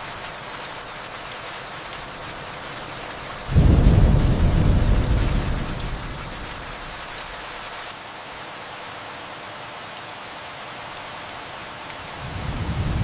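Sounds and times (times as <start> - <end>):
rain hiss: 0.0 - 13.0
distant thunder rumble: 3.5 - 6.7, 12.2 - 13.0.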